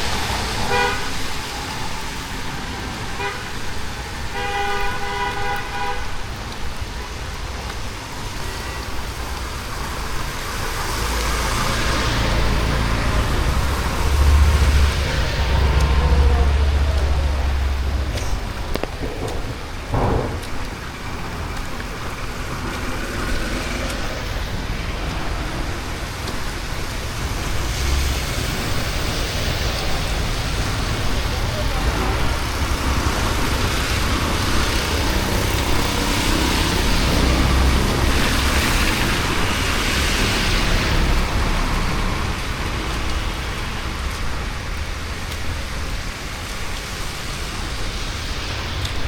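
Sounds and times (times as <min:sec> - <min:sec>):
heavy vehicle passing on wet road: 0:00.0 - 0:49.0
vehicle horn: 0:00.7 - 0:01.2, 0:03.2 - 0:03.5, 0:04.3 - 0:06.2.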